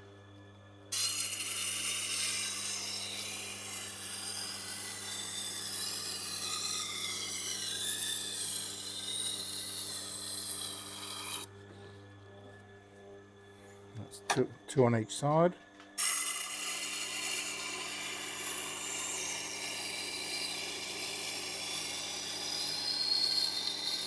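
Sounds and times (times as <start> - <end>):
knife scraping on grinding stone: 1.0 - 11.5, 16.0 - 24.0.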